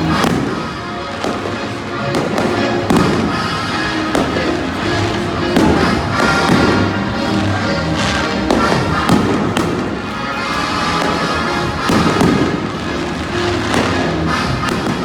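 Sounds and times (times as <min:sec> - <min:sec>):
fireworks bangs: 0:00.0 - 0:15.0
loud music with steady beat: 0:00.0 - 0:15.0.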